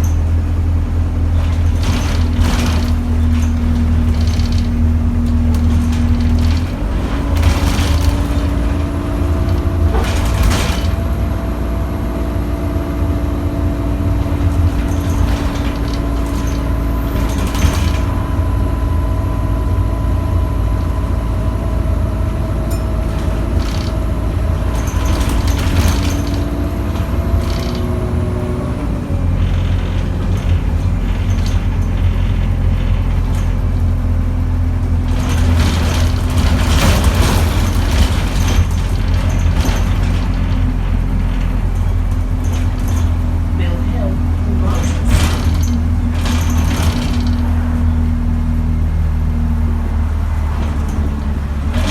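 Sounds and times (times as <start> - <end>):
bus drivetrain drone: 0.0 - 51.9
whining tone: 1.5 - 33.6.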